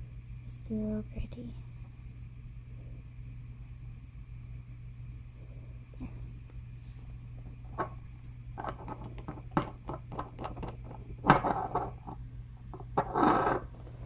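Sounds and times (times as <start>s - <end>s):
low electrical hum: 0.0s - 14.0s
small objects clicking on tabletop: 8.6s - 12.2s.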